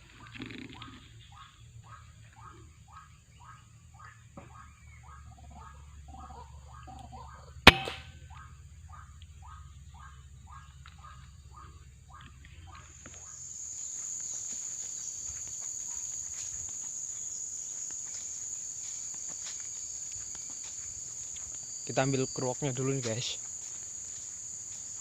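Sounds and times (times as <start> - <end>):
crickets chirring: 0.2 - 25.0
air rifle shot: 7.7 - 8.1.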